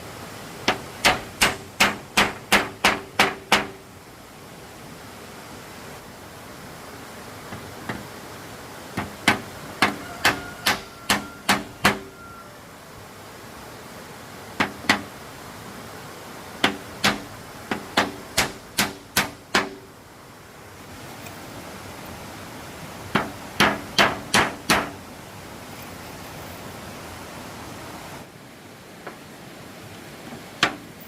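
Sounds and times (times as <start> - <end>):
background hiss: 0.0 - 31.0
hammer striking wood: 0.6 - 3.8, 9.0 - 12.1, 16.6 - 19.8, 23.2 - 25.0.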